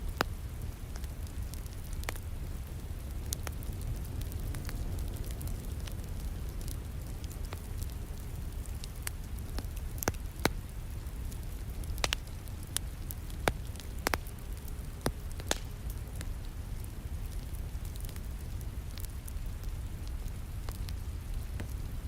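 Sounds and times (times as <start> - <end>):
wood fire crackling: 0.0 - 22.0
rain rumbling: 0.7 - 13.0.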